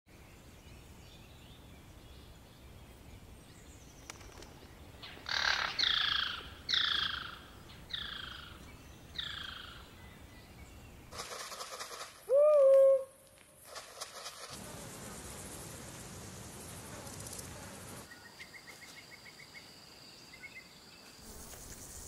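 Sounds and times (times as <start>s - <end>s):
steady outdoor hiss: 0.1s - 22.0s
bird calling: 5.0s - 9.9s, 11.2s - 13.2s.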